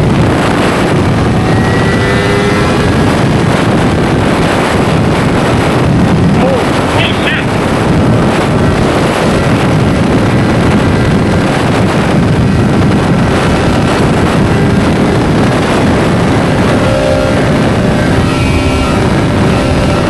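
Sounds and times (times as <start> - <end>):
motorcycle engine running: 0.0 - 20.0
wind rush on microphone: 0.0 - 20.0.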